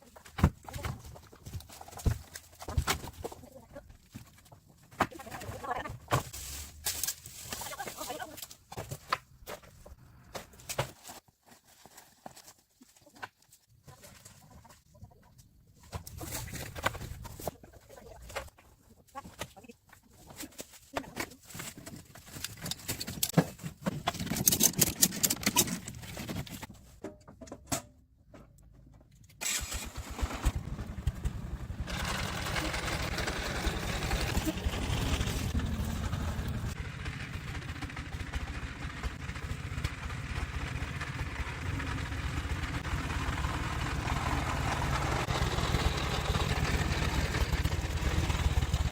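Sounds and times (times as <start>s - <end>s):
knocks and clatter: 21.1s - 29.2s
vehicle engine running: 29.6s - 48.9s.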